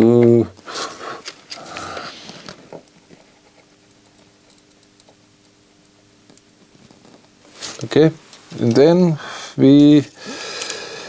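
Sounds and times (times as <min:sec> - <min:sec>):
faint steady hum: 0:00.0 - 0:11.0
breathy hiss: 0:00.6 - 0:02.7, 0:07.5 - 0:11.0
soldering ticks and taps: 0:03.8 - 0:06.7.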